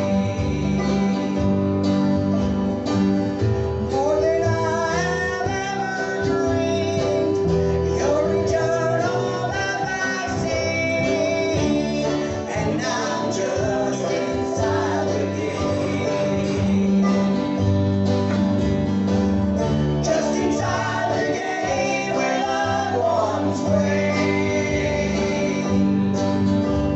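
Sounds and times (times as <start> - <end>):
voices singing gospel song: 0.0 - 2.0, 3.6 - 18.6, 19.3 - 26.9
acoustic guitar: 0.0 - 26.9.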